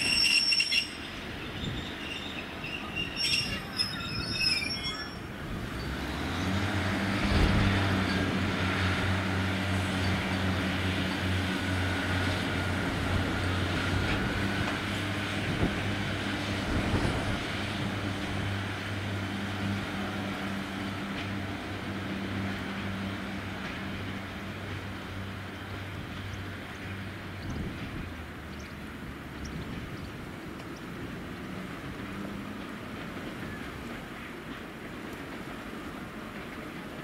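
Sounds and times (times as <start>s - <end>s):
train wheel squeal: 0.0s - 6.2s.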